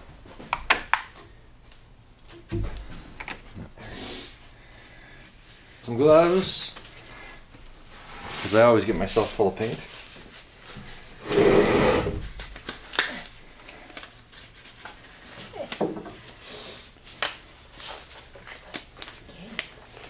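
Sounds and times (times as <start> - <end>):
disposable gloves rustling: 5.3 - 16.4.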